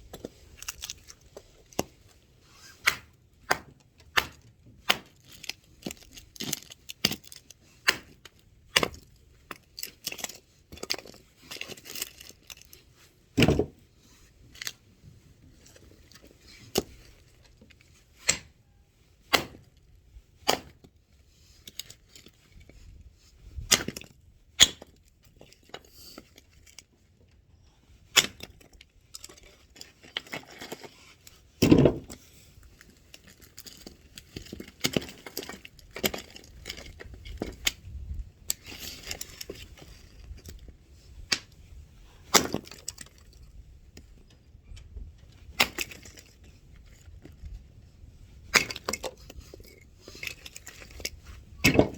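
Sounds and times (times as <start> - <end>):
axe splitting firewood: 2.6 - 12.2, 13.4 - 13.8, 18.2 - 18.5, 19.3 - 19.8, 20.4 - 20.9, 23.6 - 26.2, 28.1 - 28.8, 29.4 - 32.7, 40.6 - 43.4, 45.5 - 46.4, 48.4 - 51.9.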